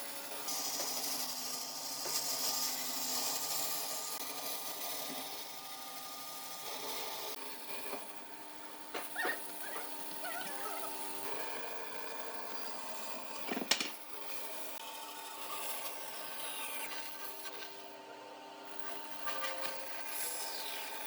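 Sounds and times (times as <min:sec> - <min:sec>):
short high squeaks: 0:09.2 - 0:11.0.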